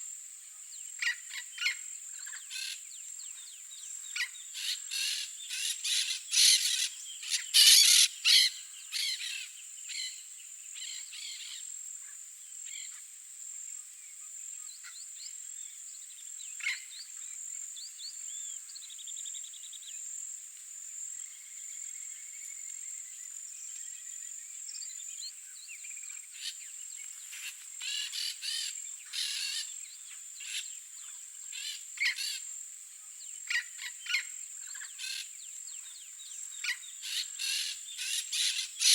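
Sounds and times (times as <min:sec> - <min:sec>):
parakeets harsh scratchy calls: 0:07.6 - 0:09.2.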